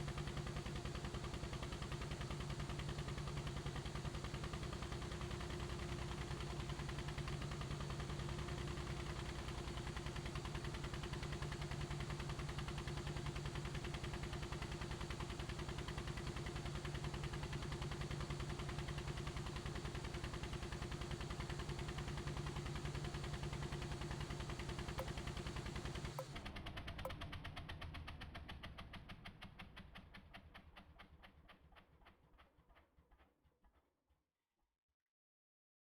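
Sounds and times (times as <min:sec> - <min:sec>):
helicopter rotor pulsing: 0:23.0 - 0:26.3.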